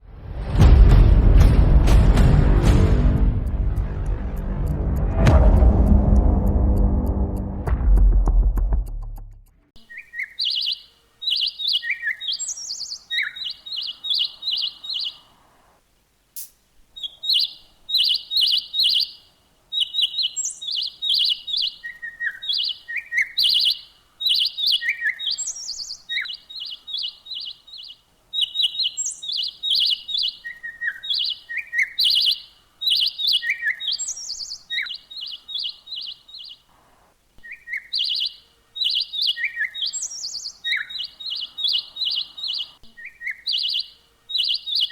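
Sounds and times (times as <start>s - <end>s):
recorded bird calls: 9.8s - 15.8s, 16.8s - 44.9s.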